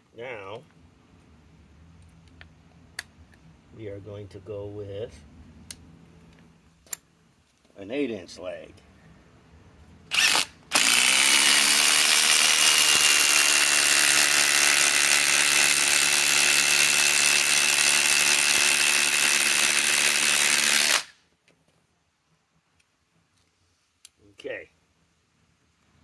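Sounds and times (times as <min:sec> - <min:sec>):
impact driver driving a screw: 0:10.1 - 0:21.2.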